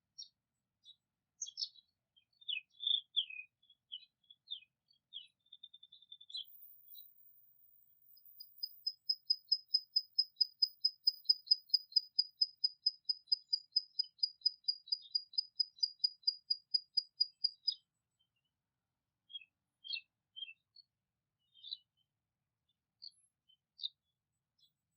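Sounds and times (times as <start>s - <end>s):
short bird chirps: 2.4s - 17.9s
songbird fast trill: 8.0s - 17.8s.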